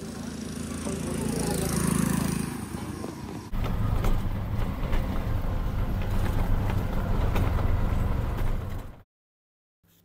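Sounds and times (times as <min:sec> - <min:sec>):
vehicle engine and road rumble: 0:00.0 - 0:09.0.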